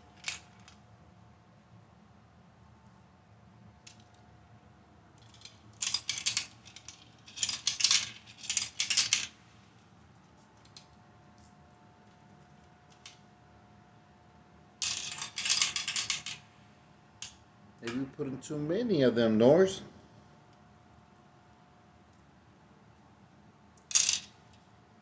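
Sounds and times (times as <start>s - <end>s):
marbles rattling through plastic track: 5.2s - 9.3s, 14.8s - 16.4s, 23.9s - 24.4s.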